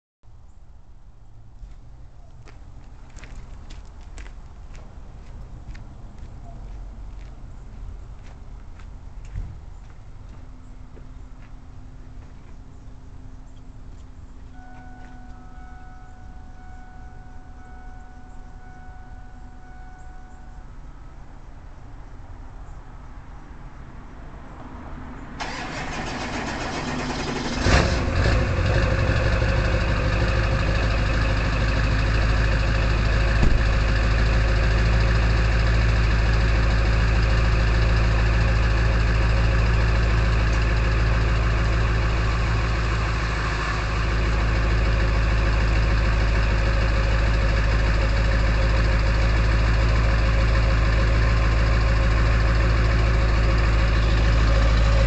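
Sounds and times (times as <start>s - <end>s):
diesel engine cranking: 25.4s - 55.0s
diesel engine rattly idle: 25.4s - 55.0s.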